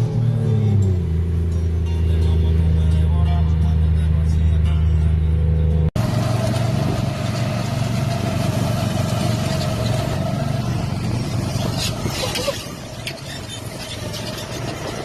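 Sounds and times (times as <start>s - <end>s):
music: 0.0s - 5.9s
car engine running: 0.0s - 15.0s.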